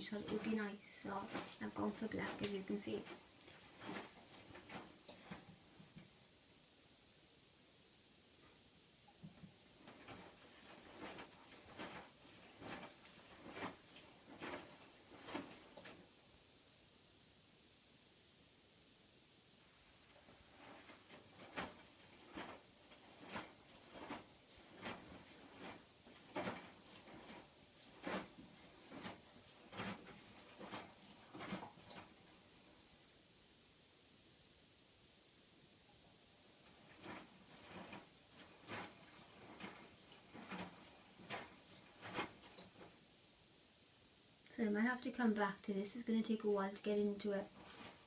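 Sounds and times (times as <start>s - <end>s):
laundry swishing: 0.0s - 6.2s, 9.2s - 16.4s, 19.6s - 33.2s, 36.4s - 43.2s, 45.9s - 48.0s.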